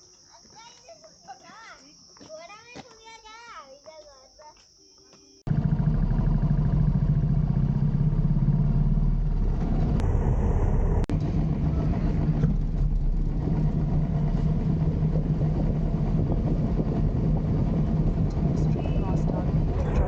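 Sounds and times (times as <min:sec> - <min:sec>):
motorcycle engine running: 0:05.5 - 0:20.0
road noise: 0:05.5 - 0:20.0
wind noise: 0:09.4 - 0:20.0.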